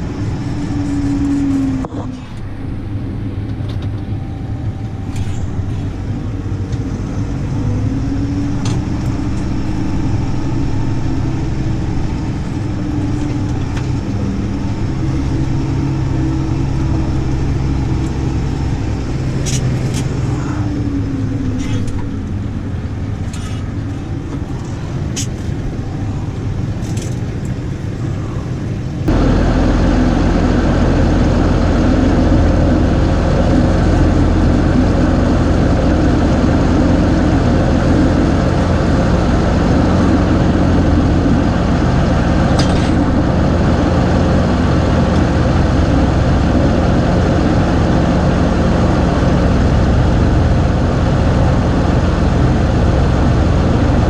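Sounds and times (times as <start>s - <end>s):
tractor engine idling: 0.0s - 54.0s.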